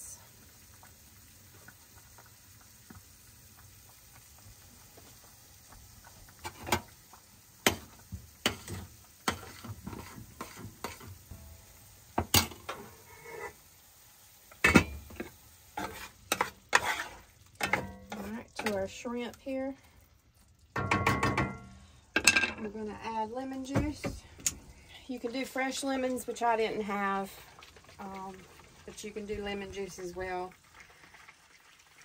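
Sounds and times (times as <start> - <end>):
faint sizzle: 0.0 - 32.0
spoon scraping a pot: 8.5 - 11.1, 12.4 - 13.6, 15.1 - 18.8.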